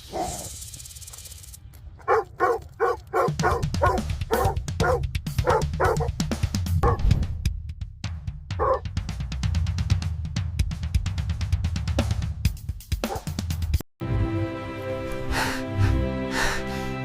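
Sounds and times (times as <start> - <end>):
animal yapping: 2.0 - 6.1, 6.8 - 7.0, 8.6 - 8.8
music with drum beat: 3.2 - 13.8.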